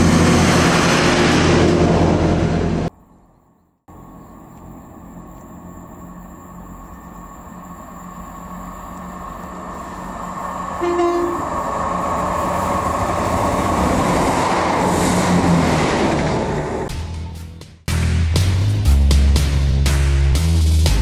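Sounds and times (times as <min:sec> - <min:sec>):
diesel train passing: 0:00.0 - 0:17.6
train horn toot: 0:10.8 - 0:11.6.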